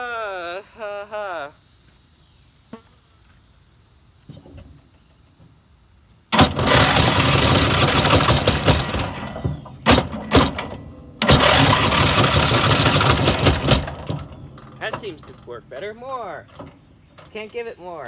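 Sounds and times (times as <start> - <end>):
lawn mower engine cranking: 6.3 - 18.0.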